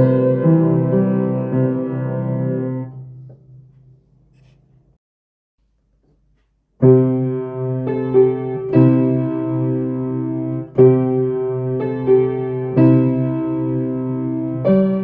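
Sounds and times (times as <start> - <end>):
solo piano chords: 0.0 - 3.7, 6.8 - 15.0.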